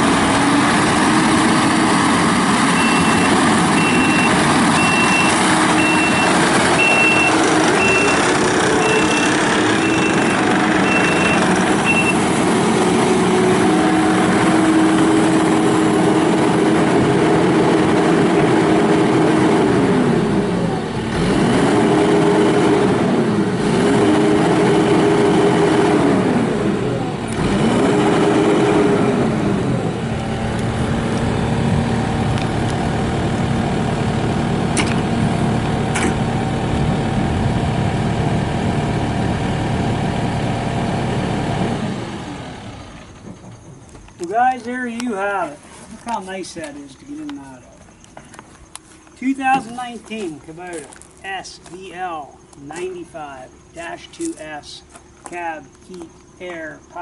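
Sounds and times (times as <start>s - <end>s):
diesel engine revving: 0.0s - 47.5s
reversing alarm beeping: 2.7s - 12.3s.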